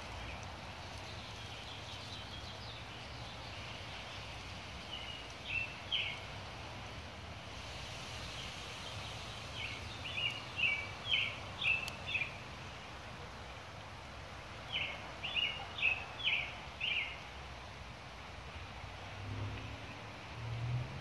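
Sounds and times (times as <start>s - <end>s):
songbird chirping: 0.0s - 7.0s, 7.6s - 13.6s, 14.5s - 17.4s
light rain hiss: 0.0s - 21.0s.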